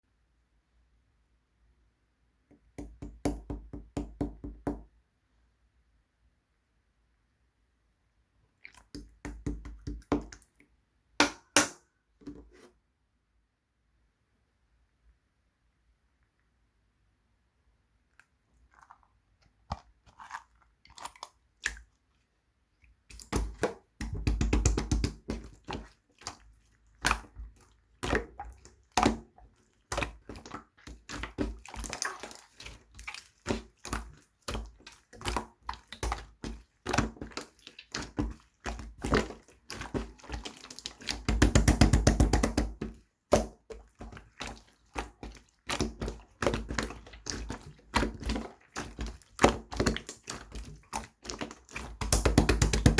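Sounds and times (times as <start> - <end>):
slime squished by hand: 23.0 - 52.9.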